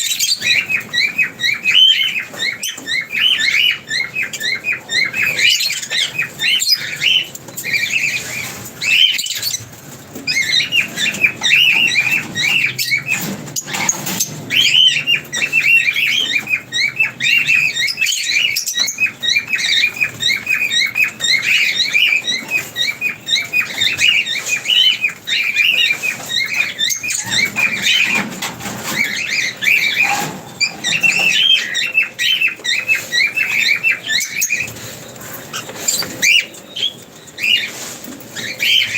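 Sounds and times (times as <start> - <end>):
parrots chattering: 0.0 - 38.9.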